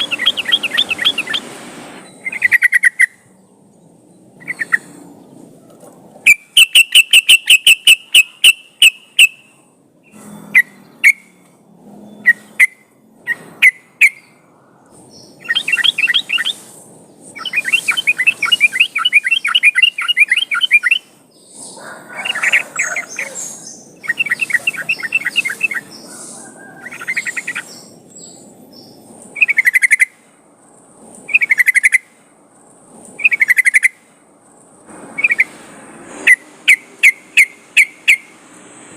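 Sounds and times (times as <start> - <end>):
bulbul singing: 0.0 - 5.4, 6.2 - 30.2, 33.2 - 34.1, 36.2 - 38.4.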